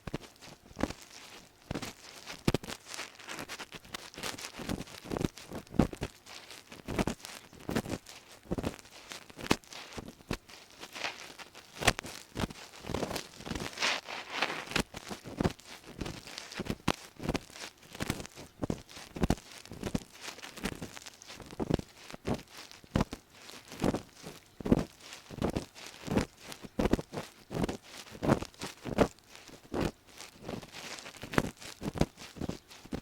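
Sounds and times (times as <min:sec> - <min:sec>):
ear pick scraping inside ear: 0:10.8 - 0:16.0.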